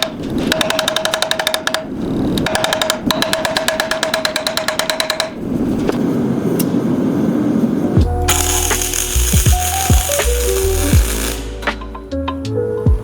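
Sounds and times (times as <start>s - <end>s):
steady ringing tone: 8.3s - 11.6s
rough noisy working sound: 8.3s - 11.7s
machine hammering on metal: 8.3s - 11.8s.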